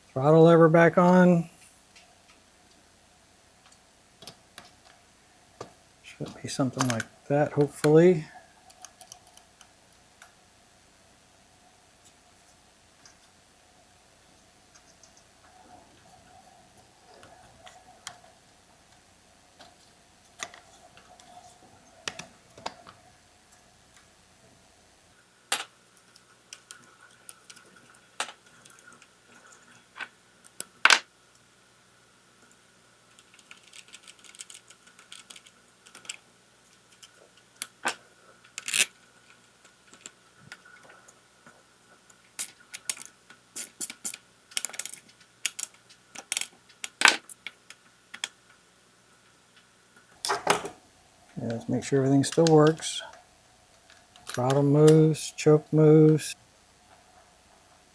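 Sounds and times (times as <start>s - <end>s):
small parts clicking and tapping: 8.7s - 10.4s, 25.5s - 31.5s, 32.4s - 48.6s.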